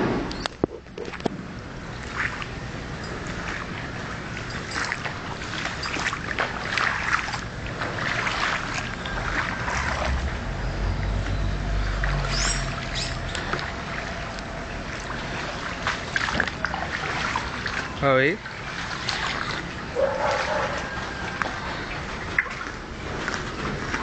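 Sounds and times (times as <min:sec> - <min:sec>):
water sloshing and splashing: 0:00.0 - 0:24.0
low rumble: 0:07.5 - 0:17.0.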